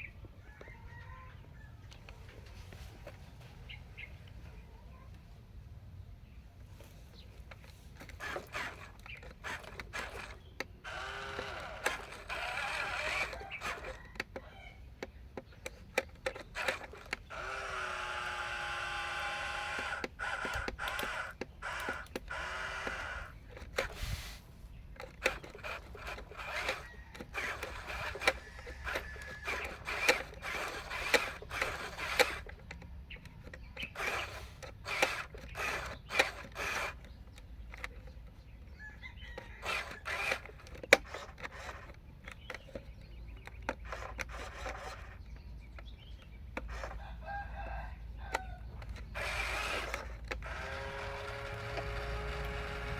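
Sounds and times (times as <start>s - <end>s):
sharp clicks and plastic clatter: 7.2s - 24.2s, 24.9s - 47.2s, 48.2s - 52.9s
small electric motor whining: 8.0s - 14.8s, 15.7s - 24.4s, 25.0s - 42.8s, 43.5s - 45.4s, 46.6s - 47.6s, 48.2s - 52.9s.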